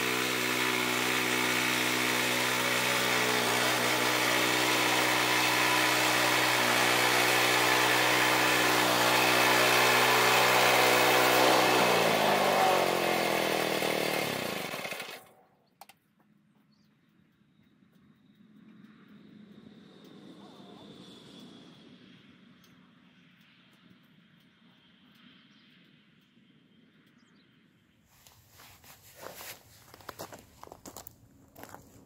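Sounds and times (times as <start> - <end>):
sawmill gas engine running: 0.0 - 15.3.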